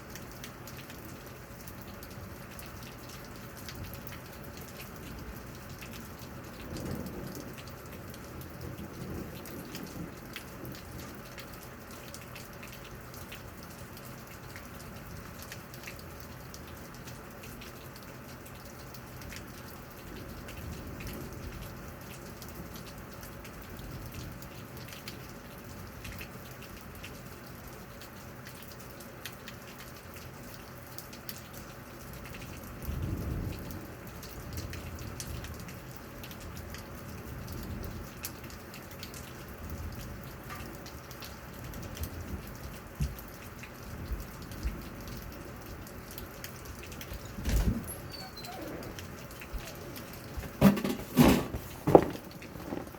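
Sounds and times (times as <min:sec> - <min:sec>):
steady rain: 0:00.0 - 0:52.9
drops tapping nearby: 0:50.4 - 0:52.9.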